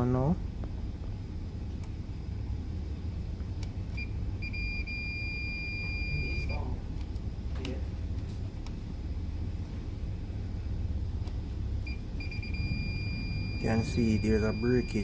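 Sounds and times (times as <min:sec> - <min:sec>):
test probes clicking: 0:03.4 - 0:04.6, 0:08.6 - 0:08.8, 0:11.2 - 0:12.0
multimeter continuity beep: 0:03.9 - 0:06.7, 0:11.8 - 0:15.0.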